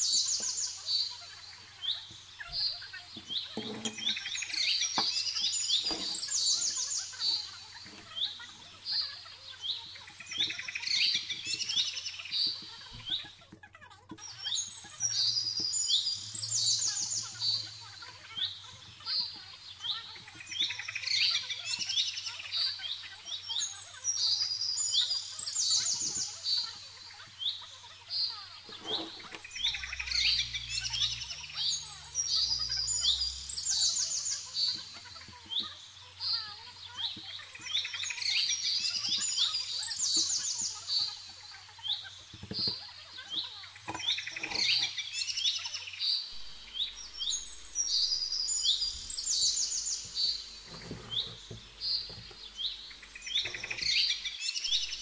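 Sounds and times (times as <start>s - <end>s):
birds chirping with high trills: 0.0s - 55.0s.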